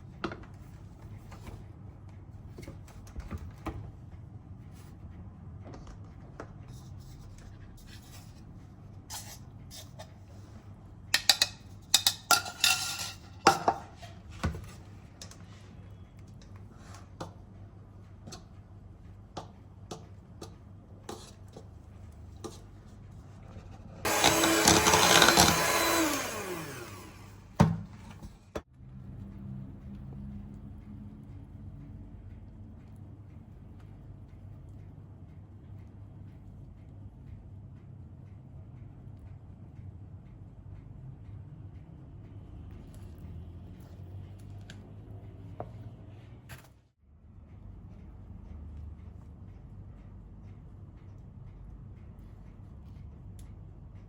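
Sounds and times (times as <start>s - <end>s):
kitchen clicks and clatter: 11.2s - 14.3s
kitchen appliance motor running: 24.0s - 27.6s.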